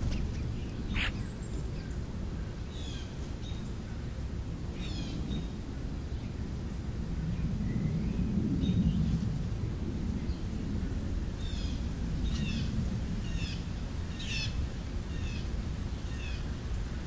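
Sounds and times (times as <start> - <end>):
birds chirping: 0.0 - 5.5
steady low rumble: 0.0 - 17.0.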